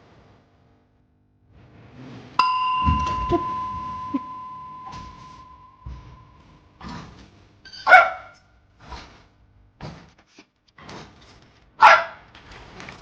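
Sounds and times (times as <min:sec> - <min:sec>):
dog barking: 0:07.8 - 0:08.4, 0:11.8 - 0:12.2.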